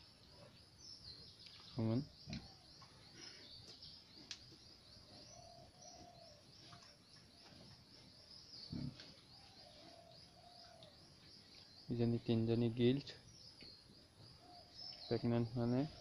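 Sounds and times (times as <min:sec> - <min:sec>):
faint birdsong chirps: 0:00.0 - 0:16.0.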